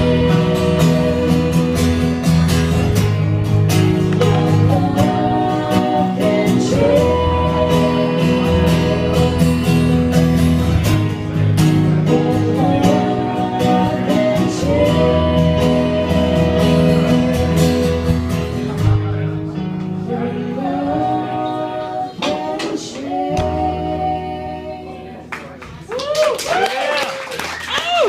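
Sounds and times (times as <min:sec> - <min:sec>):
person singing: 0:00.0 - 0:02.4, 0:04.1 - 0:10.3, 0:11.7 - 0:18.3, 0:20.0 - 0:25.3
acoustic guitar strumming: 0:00.0 - 0:25.6.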